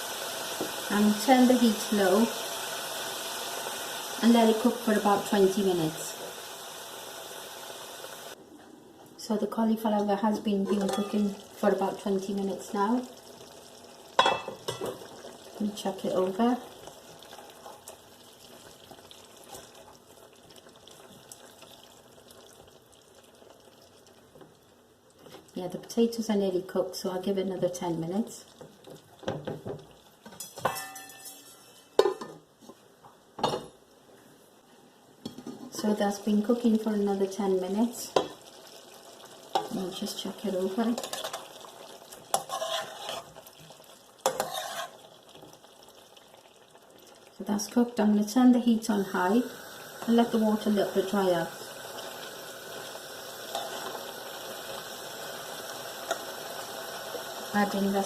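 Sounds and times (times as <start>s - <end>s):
curry sizzling and bubbling in oil: 0.0s - 8.4s, 10.4s - 26.5s, 27.3s - 32.1s, 35.2s - 58.0s
spoon scraping cooking pan: 10.6s - 11.4s, 40.8s - 41.6s, 42.2s - 43.6s, 44.2s - 45.1s, 53.5s - 54.0s.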